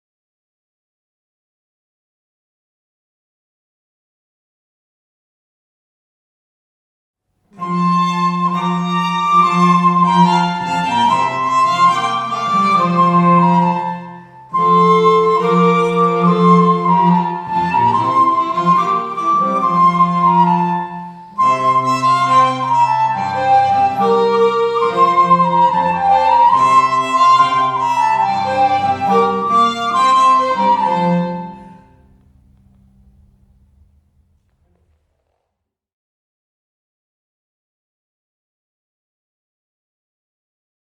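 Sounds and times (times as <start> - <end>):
bowed strings folk melody: 7.5 - 35.1.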